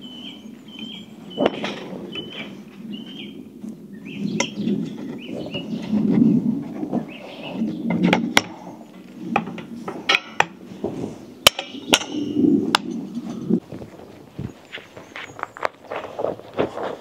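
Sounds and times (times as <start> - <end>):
low rustling: 0.0 - 17.0
sharp knocks and clicks: 11.5 - 13.0.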